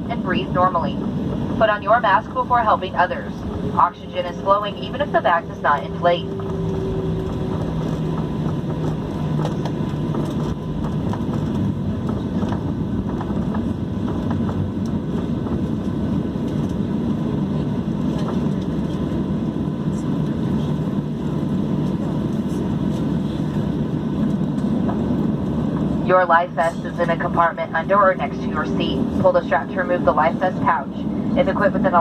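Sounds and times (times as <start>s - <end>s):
faint steady tones: 0.0s - 11.0s
airplane cabin rumble: 0.0s - 32.0s.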